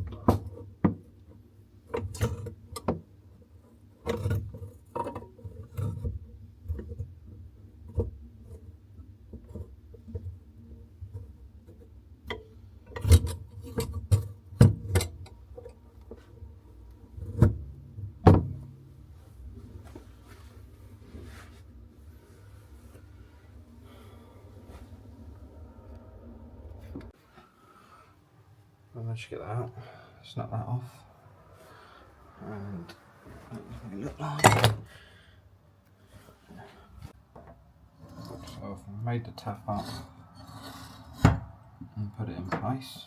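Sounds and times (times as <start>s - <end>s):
steady low hum: 13.7s - 35.6s.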